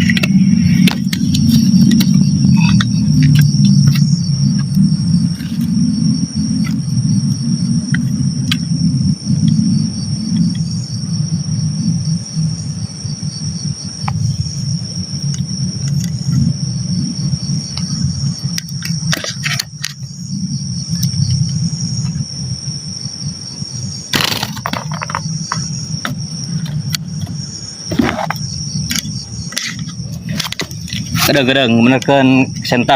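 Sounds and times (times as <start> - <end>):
low rumble: 0.0 - 19.2
crickets chirring: 0.0 - 32.9.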